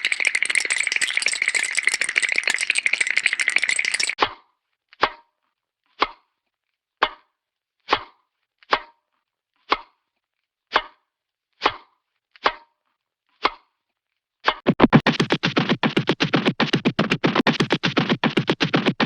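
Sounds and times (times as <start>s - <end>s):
sharp dry cartoon knocks: 14.5s - 19.0s.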